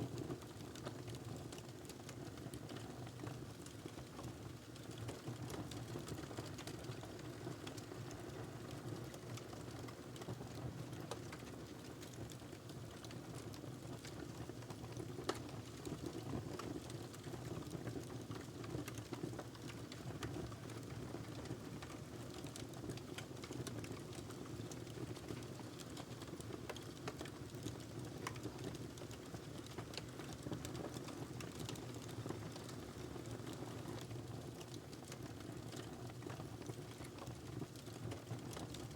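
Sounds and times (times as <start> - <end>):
wood fire crackling: 18.0 - 38.9.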